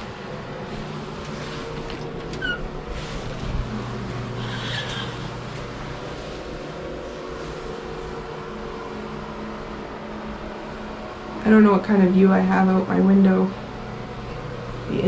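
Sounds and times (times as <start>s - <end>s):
ventilation hum: 0.0s - 15.0s
brief squeaks: 2.3s - 2.7s, 4.4s - 5.3s.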